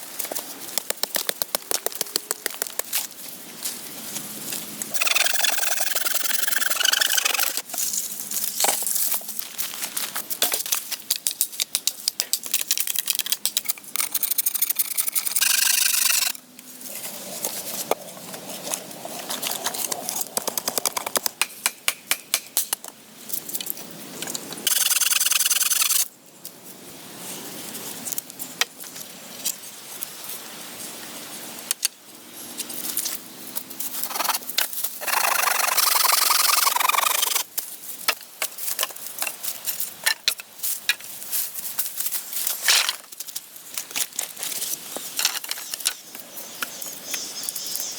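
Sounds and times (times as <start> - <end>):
hand tools scraping wood: 4.9 - 7.6, 13.6 - 16.4, 34.0 - 37.4
rough noise: 4.9 - 7.7, 34.0 - 37.5.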